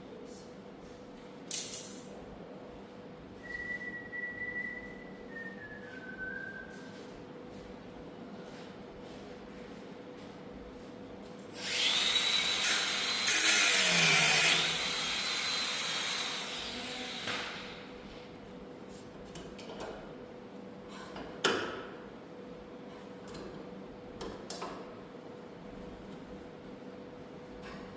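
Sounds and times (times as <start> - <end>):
power tool running: 11.5 - 17.9.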